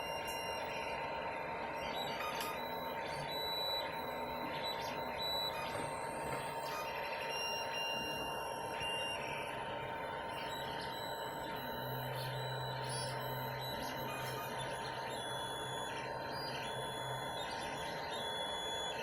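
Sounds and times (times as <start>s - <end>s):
printer fan whir: 0.0s - 19.0s
stepper motors whining: 0.0s - 19.0s.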